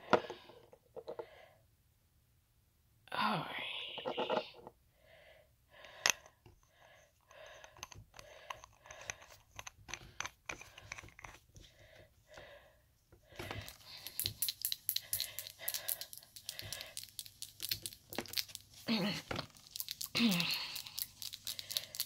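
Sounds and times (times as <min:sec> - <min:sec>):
nail polish bottle clicks and rustles: 0:13.4 - 0:22.0.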